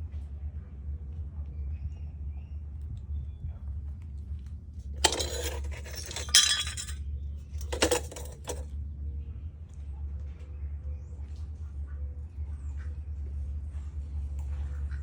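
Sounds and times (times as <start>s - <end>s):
hard objects clinking and rattling: 5.0s - 7.0s, 7.6s - 8.6s.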